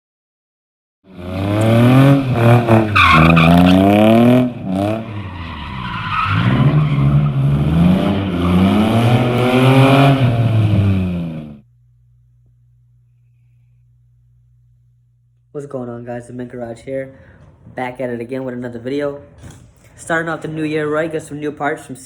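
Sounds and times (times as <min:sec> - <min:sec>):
car engine revving hard: 0:01.1 - 0:11.6
tyre squeal: 0:02.8 - 0:04.1.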